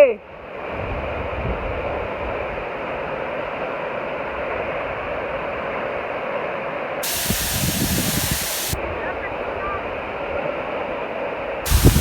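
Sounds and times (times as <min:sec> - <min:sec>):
bright harsh hiss: 0:07.0 - 0:08.8, 0:11.7 - 0:12.0
waterfall rushing: 0:07.0 - 0:08.8, 0:11.7 - 0:12.0.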